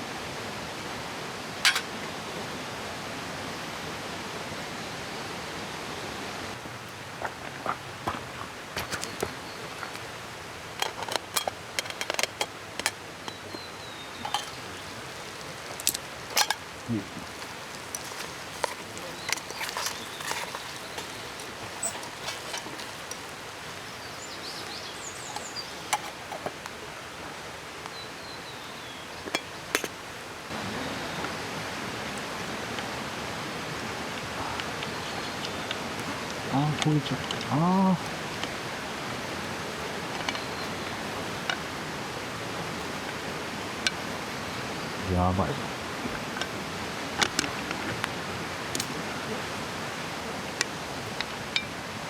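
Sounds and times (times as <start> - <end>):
flowing river: 0.0 - 52.0
mountain stream rushing: 0.0 - 52.0
light clinks: 14.0 - 26.4.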